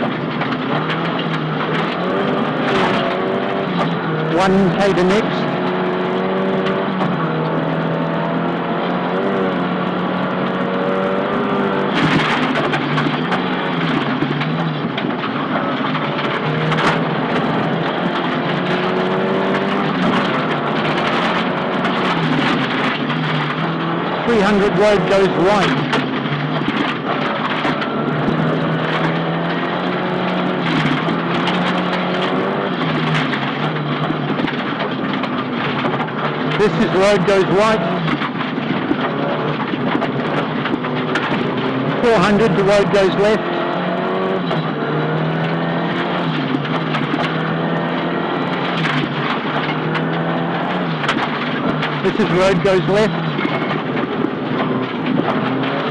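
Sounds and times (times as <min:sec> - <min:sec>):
car engine from inside: 0:00.0 - 0:55.9
road and tyre noise: 0:00.0 - 0:55.9.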